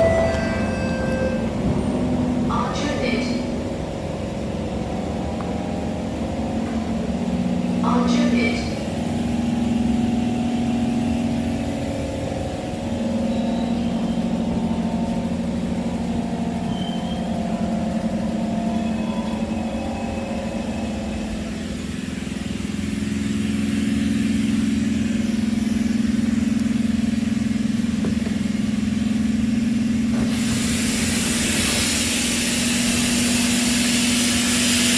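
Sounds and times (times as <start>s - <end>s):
faint whining tones: 0.0s - 8.2s
train car low drone: 0.0s - 34.9s
loud hiss: 30.2s - 34.9s.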